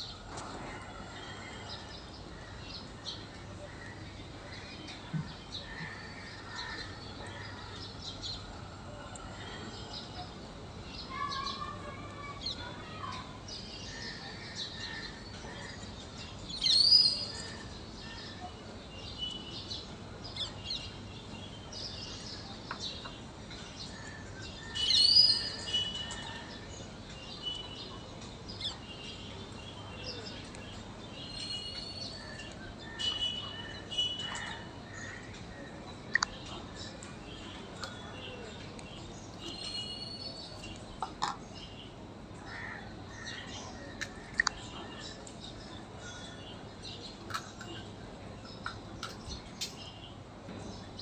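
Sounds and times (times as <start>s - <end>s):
birds chirping and calling: 12.3s - 19.5s, 20.2s - 51.0s.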